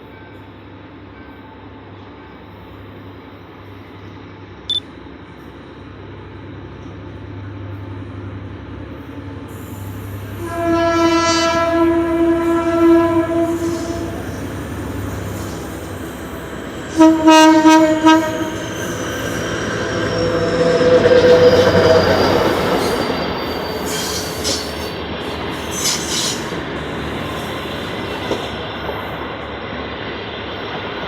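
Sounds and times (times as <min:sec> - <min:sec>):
diesel locomotive engine rumble: 0:03.1 - 0:31.0
locomotive horn blast: 0:10.3 - 0:14.5, 0:16.9 - 0:18.7.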